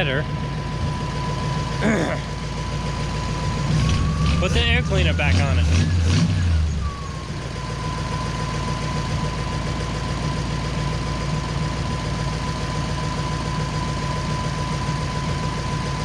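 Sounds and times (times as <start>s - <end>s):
car engine idling: 0.0s - 16.0s
high-pitched whine: 3.1s - 9.7s.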